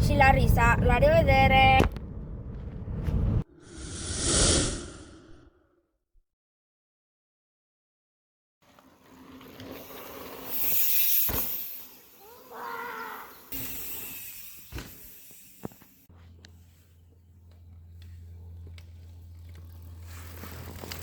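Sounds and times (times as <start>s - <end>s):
wind and trail noise: 0.0s - 5.3s, 8.8s - 21.0s
steady low hum: 16.1s - 21.0s.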